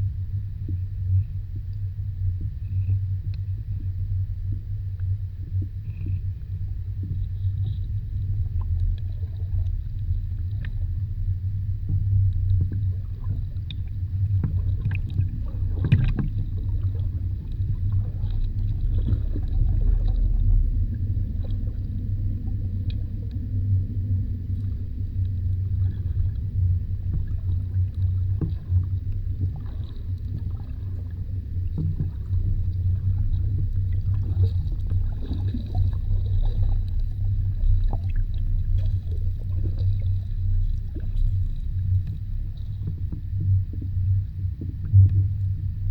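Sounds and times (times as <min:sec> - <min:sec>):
underwater low rumble: 0:00.0 - 0:45.9
small clicks and crackles: 0:07.0 - 0:11.0, 0:11.9 - 0:20.2.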